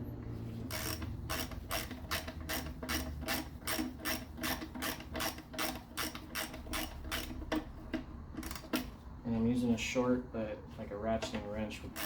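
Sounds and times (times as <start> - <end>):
socket ratchet clicking: 0.7 - 7.8.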